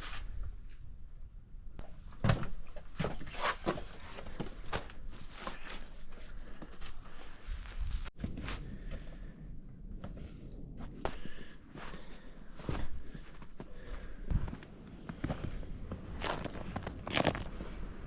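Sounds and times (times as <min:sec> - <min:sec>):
footsteps on snow and rock: 0:03.2 - 0:09.3, 0:10.0 - 0:18.0.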